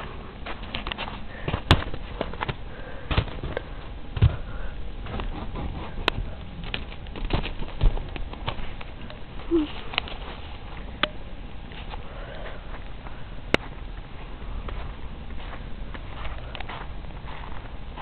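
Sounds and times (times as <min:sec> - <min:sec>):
noisy background: 0:00.0 - 0:18.0
crunching and knocking: 0:00.5 - 0:09.1.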